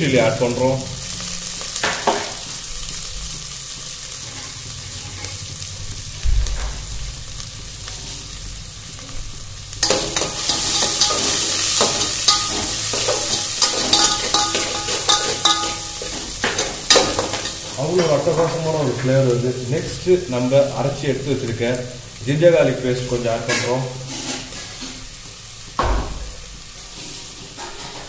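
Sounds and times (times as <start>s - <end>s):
vegetables sizzling in oil: 0.0s - 28.0s
metal spatula scraping pot: 9.8s - 18.4s, 23.5s - 25.1s
dull knock: 25.8s - 26.4s.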